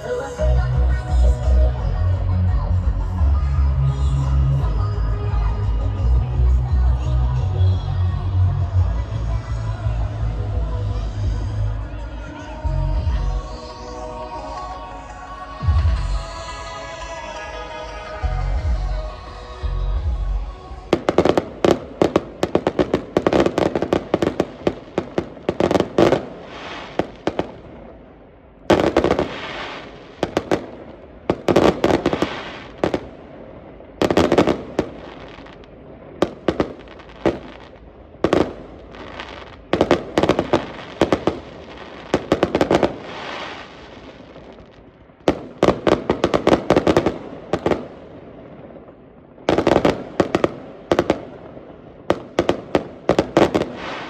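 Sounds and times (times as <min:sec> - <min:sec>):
fireworks bangs and crackling: 0:18.4 - 0:54.0.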